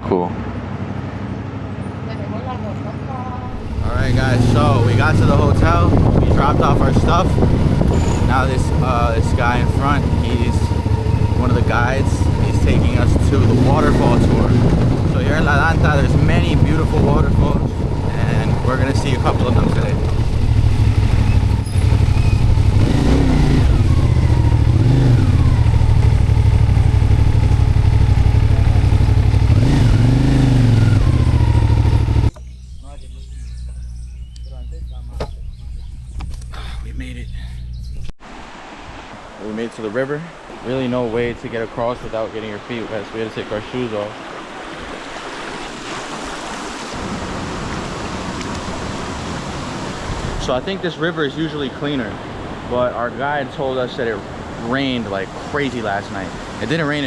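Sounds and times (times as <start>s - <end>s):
motorcycle engine rumbling: 3.1s - 38.2s
river water rushing: 3.4s - 32.3s, 38.2s - 57.0s.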